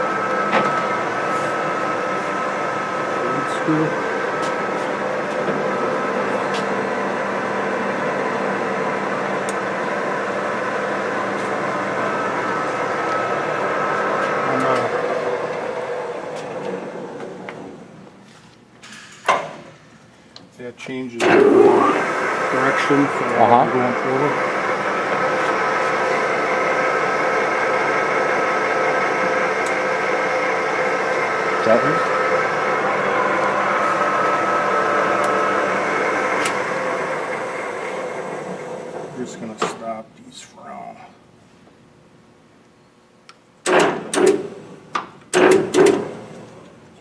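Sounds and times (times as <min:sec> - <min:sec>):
lathe running: 0:00.0 - 0:18.0, 0:21.2 - 0:39.6.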